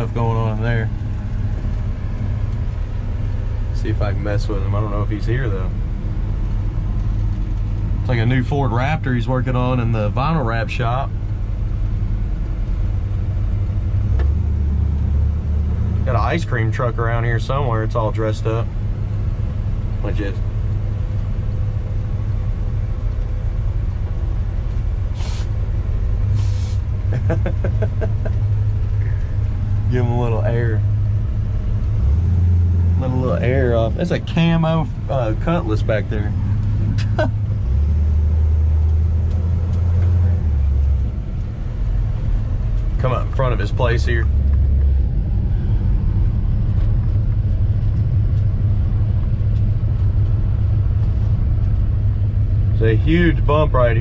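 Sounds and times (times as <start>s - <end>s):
pickup engine and road noise: 0.0s - 54.0s
short hisses of air: 25.1s - 25.6s, 26.3s - 26.9s.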